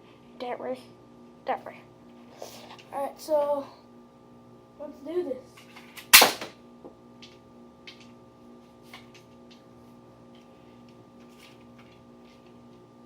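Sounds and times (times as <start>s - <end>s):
dart blaster firing snap: 6.1s - 6.5s.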